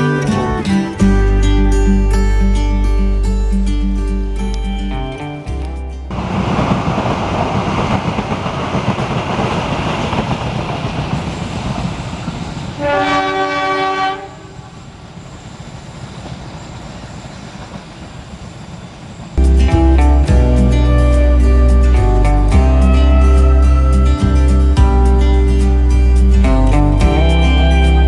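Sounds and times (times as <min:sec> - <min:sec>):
train wheels rolling on rails: 0:06.1 - 0:19.4
locomotive horn: 0:12.8 - 0:14.6.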